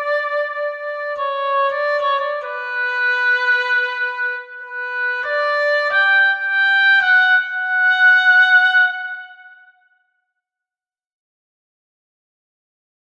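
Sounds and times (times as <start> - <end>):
oboe playing held notes: 0.0 - 9.4.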